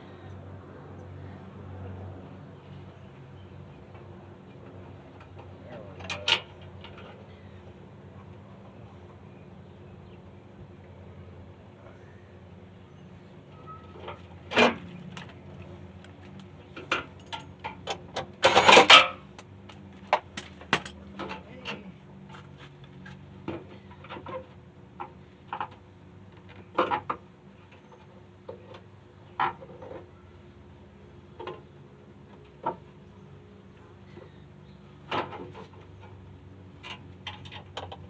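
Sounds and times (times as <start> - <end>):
rattling clatter: 16.8 - 19.2.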